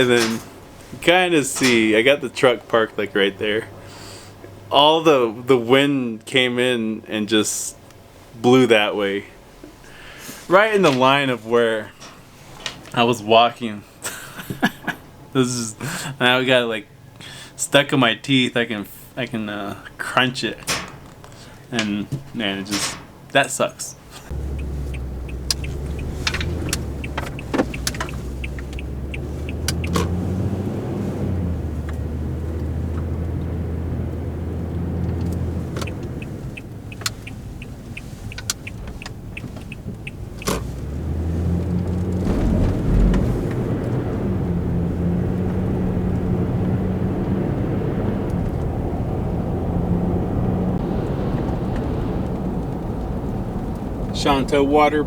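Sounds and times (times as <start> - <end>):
truck engine humming: 24.0 - 55.0
sharp clicks and knocks: 24.4 - 30.3, 35.0 - 37.7.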